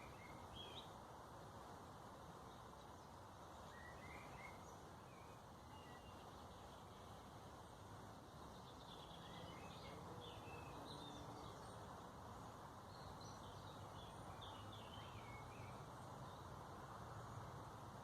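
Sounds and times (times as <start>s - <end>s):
faint bird chirps: 0.0s - 1.0s, 2.4s - 7.8s, 8.4s - 16.5s.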